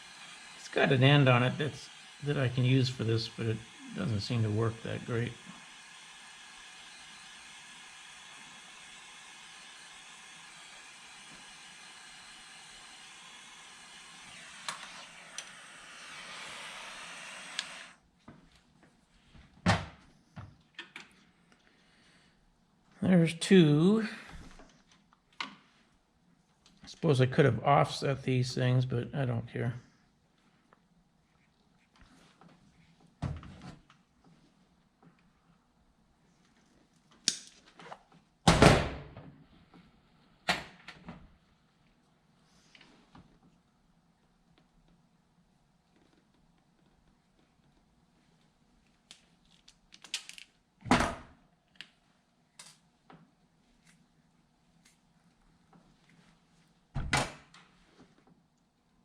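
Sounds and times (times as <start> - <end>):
hot-air soldering tool hissing: 0.0 - 18.0.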